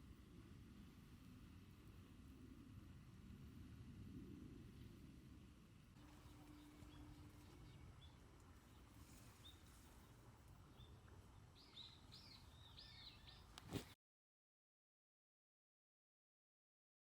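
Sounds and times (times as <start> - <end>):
bird chirping: 11.6 - 13.6.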